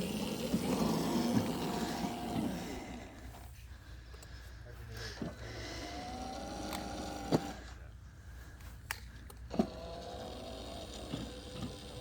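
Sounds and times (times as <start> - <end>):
electric motors whining: 0.0 - 3.6, 5.2 - 7.8, 9.2 - 12.0.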